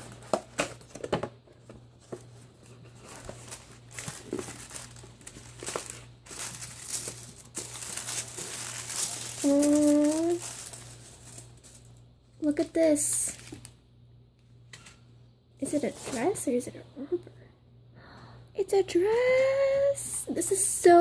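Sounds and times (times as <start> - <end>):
packaging crinkling: 2.1 - 12.1, 13.0 - 13.8.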